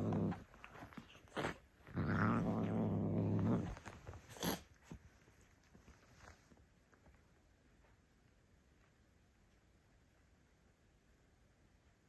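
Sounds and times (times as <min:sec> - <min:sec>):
cat growling: 0:00.0 - 0:04.9.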